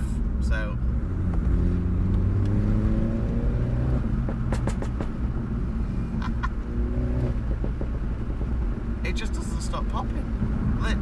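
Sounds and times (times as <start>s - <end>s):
car engine revving: 0.0s - 9.1s
exhaust crackles and pops: 4.0s - 5.2s.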